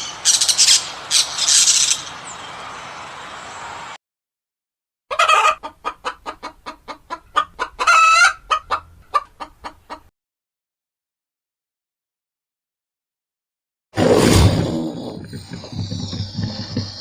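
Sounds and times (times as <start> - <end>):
chicken clucking: 5.1 - 10.1, 15.3 - 17.0
chicken squawk: 5.1 - 10.1.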